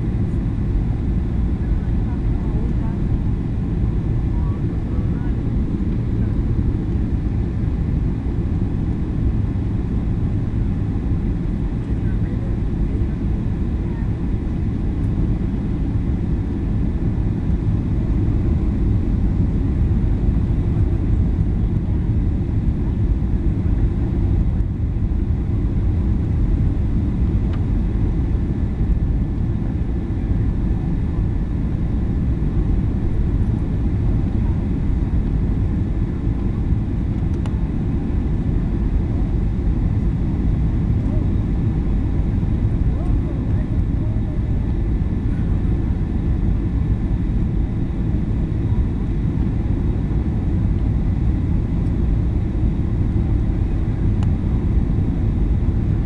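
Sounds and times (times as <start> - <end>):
jet cabin engine roar: 0.0 - 56.0.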